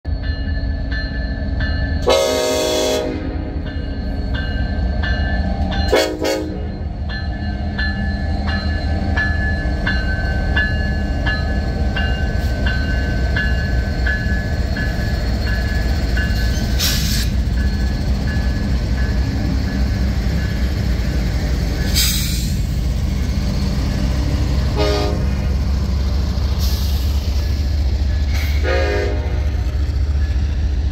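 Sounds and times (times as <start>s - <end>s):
diesel locomotives rumbling: 0.0s - 30.9s
locomotive horn: 2.0s - 3.6s, 5.9s - 6.8s, 24.6s - 25.5s, 28.6s - 29.7s.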